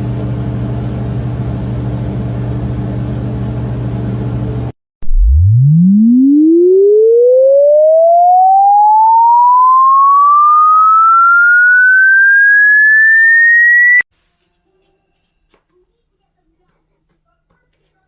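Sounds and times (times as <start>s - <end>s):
rising sine-wave tone sweep: 5.0s - 14.0s.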